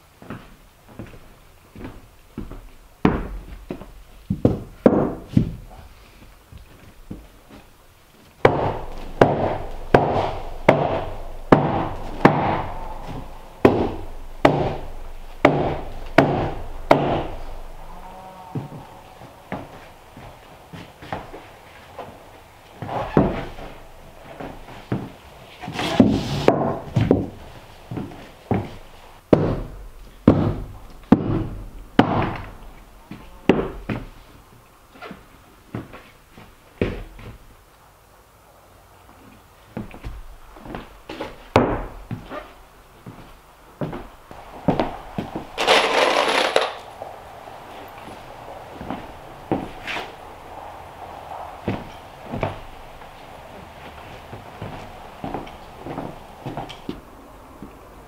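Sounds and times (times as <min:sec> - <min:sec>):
hammer blows on wood: 0:08.4 - 0:20.1
hammer blows on wooden floor: 0:08.4 - 0:22.2, 0:22.8 - 0:34.2.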